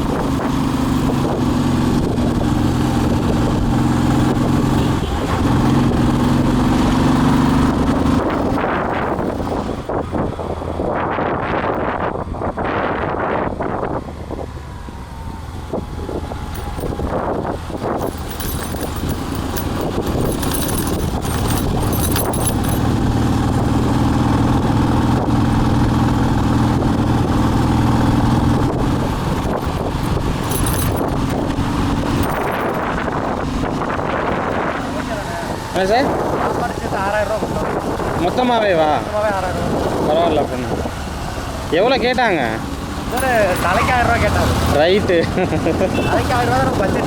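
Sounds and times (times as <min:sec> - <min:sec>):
motorcycle engine running: 0:16.5 - 0:35.8.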